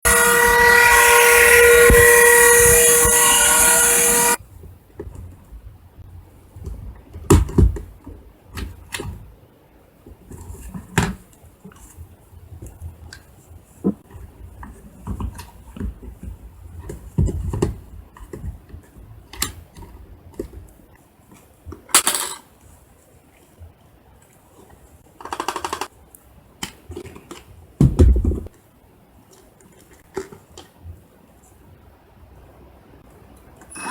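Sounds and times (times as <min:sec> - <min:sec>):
vacuum cleaner whining: 0:00.0 - 0:04.4.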